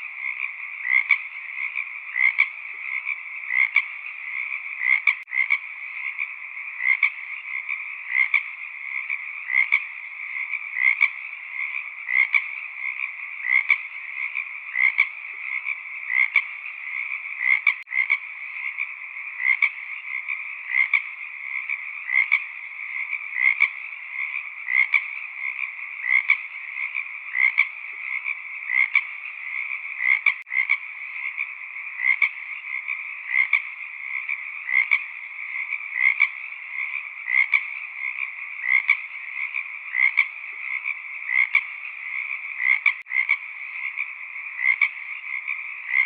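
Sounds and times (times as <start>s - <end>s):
frog chorus trilling: 0.0s - 46.0s
individual frog calls: 0.0s - 46.0s.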